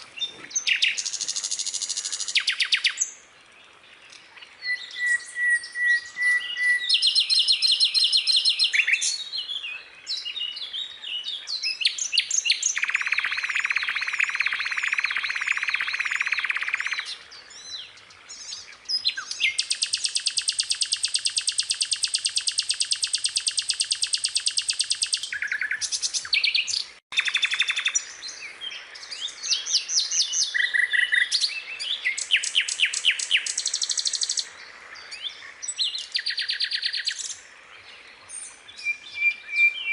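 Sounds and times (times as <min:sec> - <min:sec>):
skylark singing: 0:18.9 - 0:28.1.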